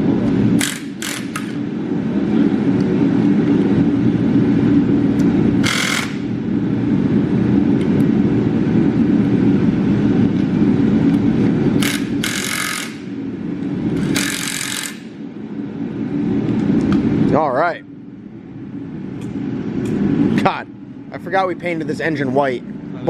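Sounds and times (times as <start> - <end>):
steady machine drone: 0.0 - 23.0.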